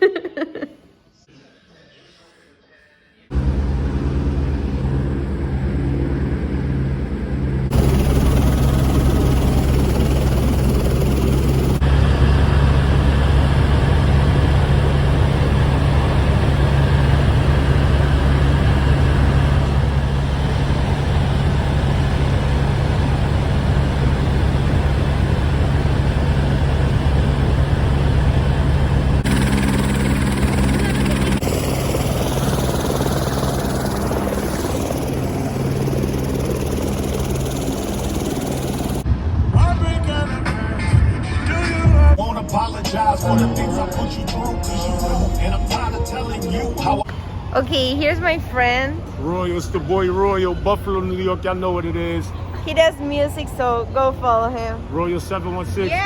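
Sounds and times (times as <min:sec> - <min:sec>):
helicopter engine and rotor: 0:03.3 - 0:39.1.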